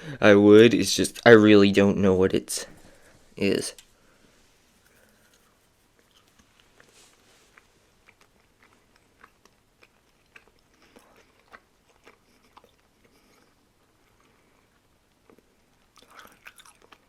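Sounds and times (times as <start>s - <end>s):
person chewing gum: 4.8s - 17.0s.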